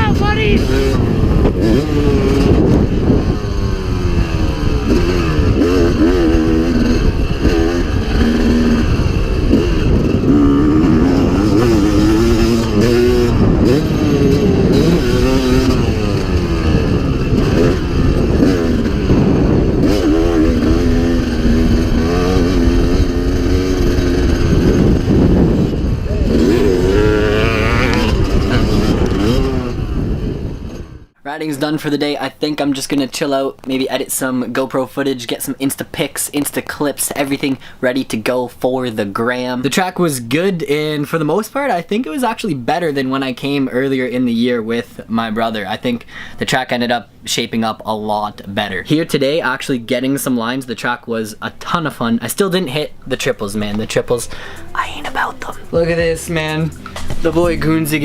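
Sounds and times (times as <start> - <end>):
dirt bike engine revving: 0.0 - 31.1, 52.7 - 58.0.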